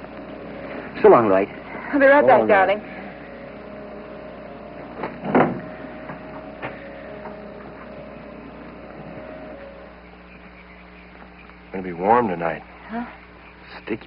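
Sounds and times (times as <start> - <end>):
steady faint tone: 0.0 - 14.0
door squeaking: 4.9 - 8.2.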